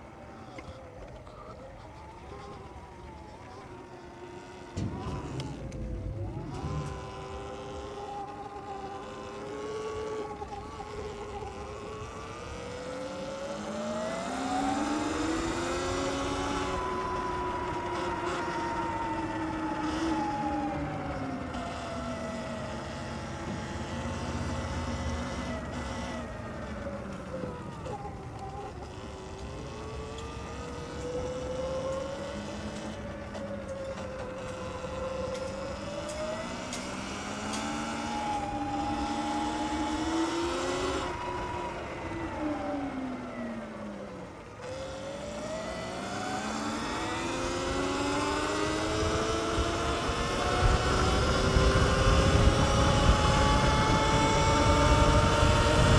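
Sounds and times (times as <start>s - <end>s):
wind rumble: 0.0s - 13.0s, 47.2s - 55.9s
electric dirt bike motor whining: 0.0s - 55.9s.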